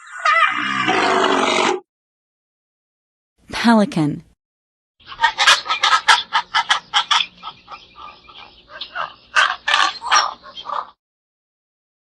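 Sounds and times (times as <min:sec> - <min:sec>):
pelican calls: 0:05.0 - 0:11.0.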